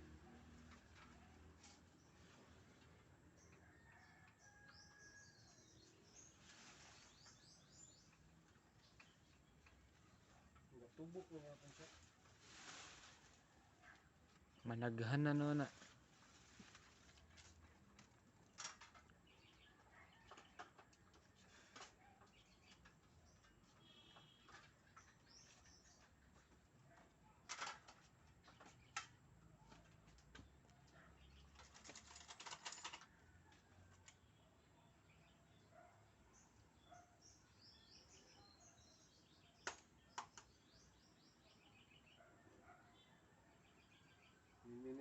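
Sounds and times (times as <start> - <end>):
small birds chirping: 0.7 - 11.9, 15.7 - 32.5, 34.0 - 45.0
faint bird chirps: 21.6 - 26.1.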